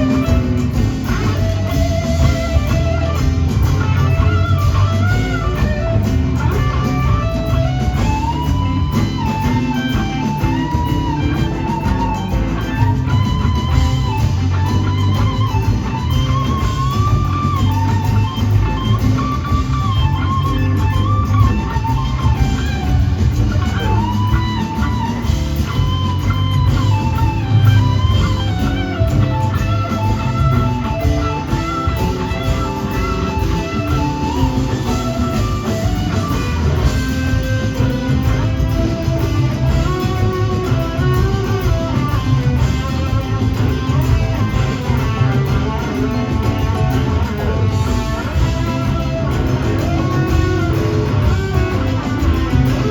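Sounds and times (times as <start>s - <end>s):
bass guitar: 0.0s - 52.9s
drums: 0.0s - 52.9s
electric guitar lead: 0.0s - 52.9s.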